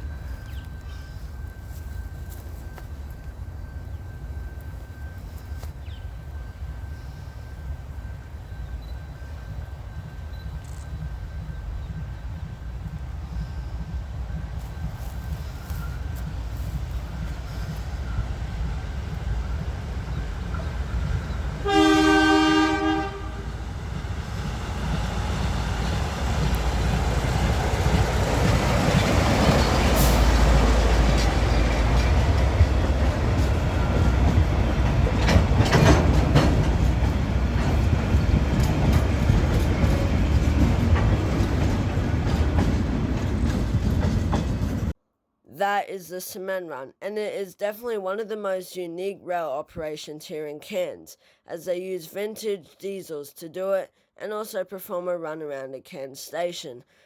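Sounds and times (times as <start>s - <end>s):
diesel locomotive engine rumble: 0.0s - 45.0s
train wheel noise: 0.0s - 45.0s
locomotive horn blast: 21.6s - 23.8s
wheels clicking over rail joints: 24.4s - 45.0s.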